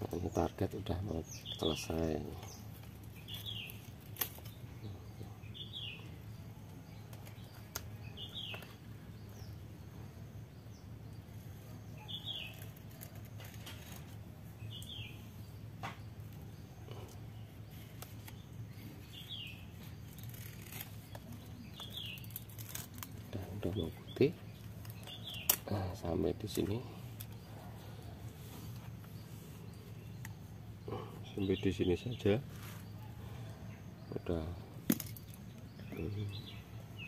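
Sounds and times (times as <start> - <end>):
bird chirping: 0.0 - 37.0
blade scraping coconut husk: 11.4 - 15.1, 16.9 - 33.0.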